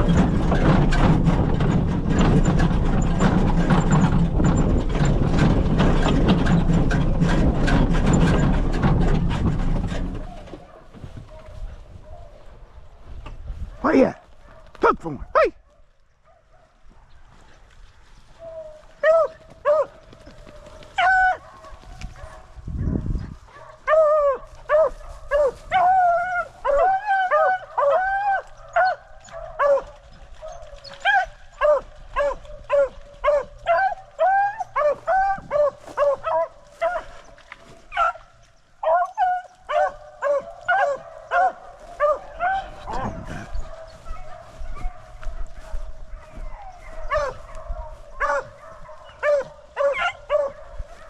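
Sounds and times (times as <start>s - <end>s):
beagles baying: 13.7s - 51.0s.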